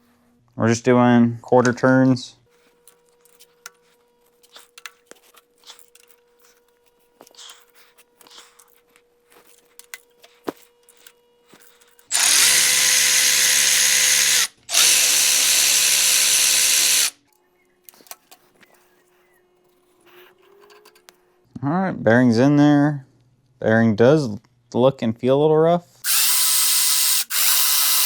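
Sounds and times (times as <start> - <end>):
power drill driver running: 12.1 - 17.2, 26.0 - 28.0.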